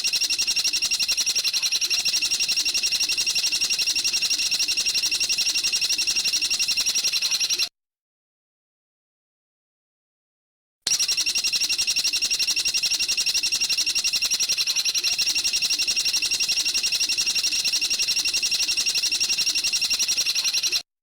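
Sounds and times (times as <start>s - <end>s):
bird trilling: 13.6s - 20.8s.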